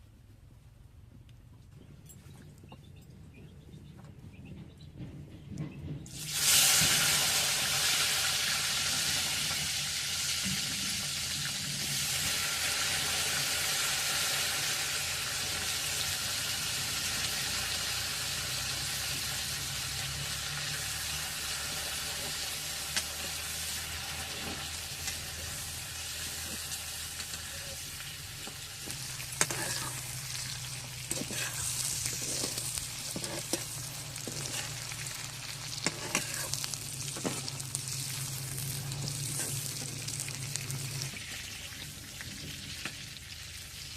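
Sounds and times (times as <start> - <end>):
food sizzling in hot oil: 6.1 - 43.9
stirring knocks and scrapes: 21.7 - 35.1, 35.8 - 37.6, 38.8 - 40.0.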